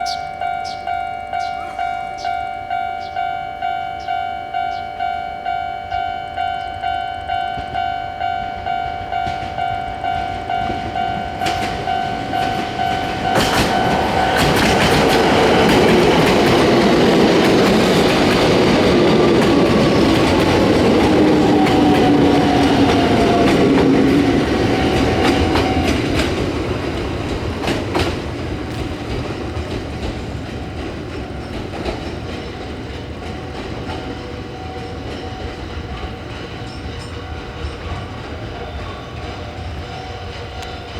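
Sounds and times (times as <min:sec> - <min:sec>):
level crossing bell ringing: 0:00.0 - 0:27.4
train wheels clattering: 0:00.0 - 0:40.9
train falling whine: 0:05.9 - 0:40.9.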